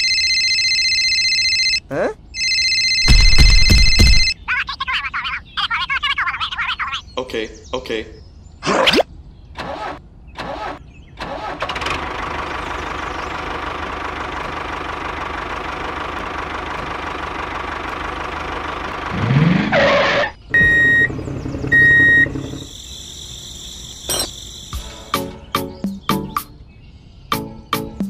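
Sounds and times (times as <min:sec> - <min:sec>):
short high-pitched beeps: 0:02.4 - 0:04.4
small tractor engine running: 0:11.6 - 0:19.3, 0:20.5 - 0:22.8.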